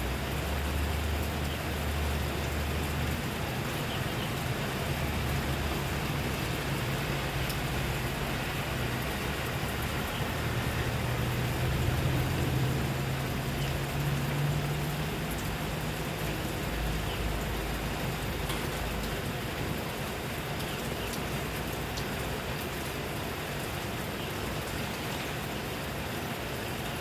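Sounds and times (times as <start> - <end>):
steady rain falling: 0.0 - 27.0
vehicle engine hum: 0.0 - 27.0.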